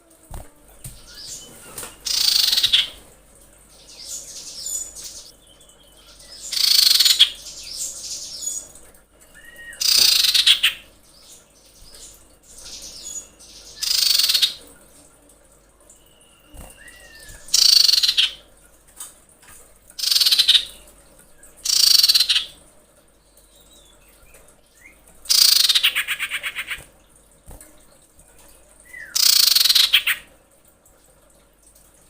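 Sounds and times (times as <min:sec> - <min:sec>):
bird harsh screeching calls: 0:02.1 - 0:03.0.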